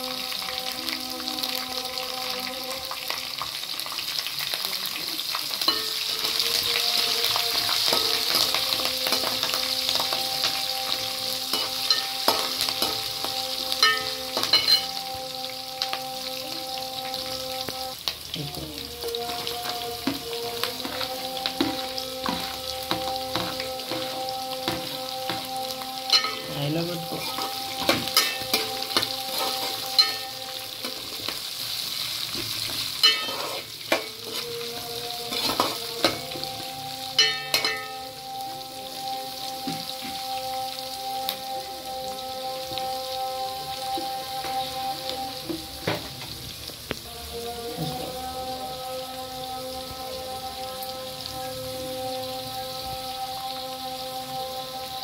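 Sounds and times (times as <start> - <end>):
food sizzling in hot oil: 0.0 - 55.0
metal spatula scraping pan: 19.3 - 31.4, 32.7 - 34.4.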